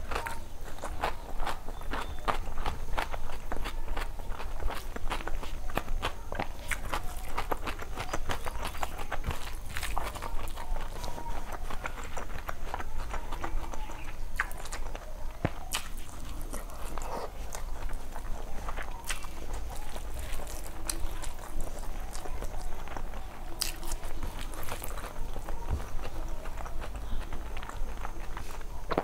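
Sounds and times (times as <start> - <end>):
fingers squishing rice on plate: 0.0 - 29.0
person chewing: 0.0 - 29.0.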